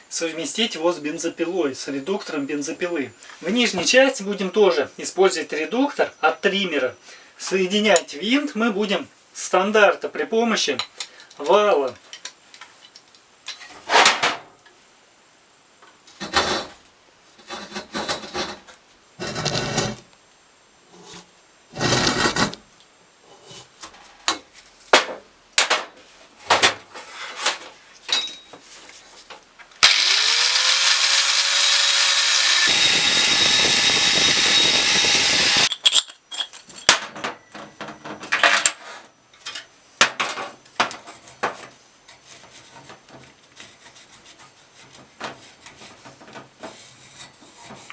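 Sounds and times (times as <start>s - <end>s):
power tool whining: 29.8s - 35.7s
metal tools knocking and clattering: 35.7s - 37.4s.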